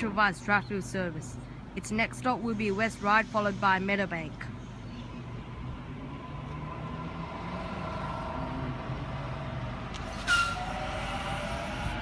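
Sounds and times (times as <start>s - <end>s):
electric train motor whine: 5.4s - 12.0s
loud hiss with squeal: 10.1s - 12.0s.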